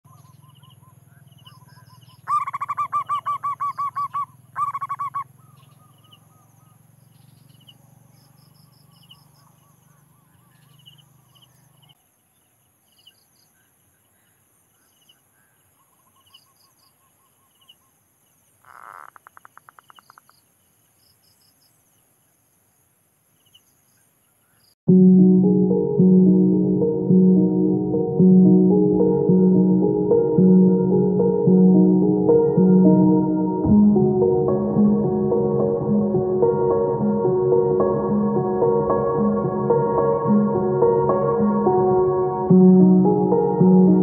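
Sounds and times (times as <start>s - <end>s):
bird fast repeated notes: 0.1s - 6.4s
fast pulsed bird call: 0.1s - 7.8s
short high bird chirps: 0.1s - 7.8s.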